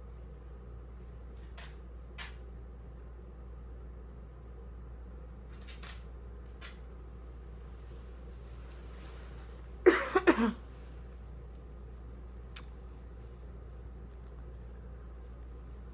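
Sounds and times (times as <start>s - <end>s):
steady low hum: 0.0s - 15.9s
person coughing: 9.8s - 10.7s.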